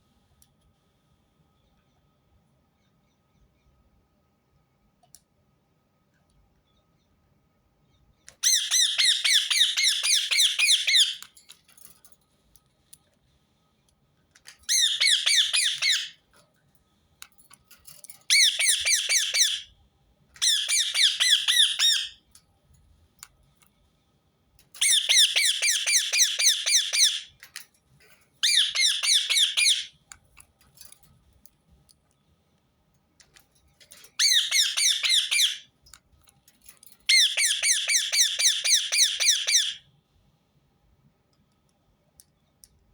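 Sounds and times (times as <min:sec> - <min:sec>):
parakeet screeching: 0:08.4 - 0:11.2, 0:14.7 - 0:16.1, 0:18.3 - 0:19.7, 0:20.4 - 0:22.2, 0:24.8 - 0:27.3, 0:28.4 - 0:29.9, 0:34.2 - 0:35.6, 0:37.1 - 0:39.8.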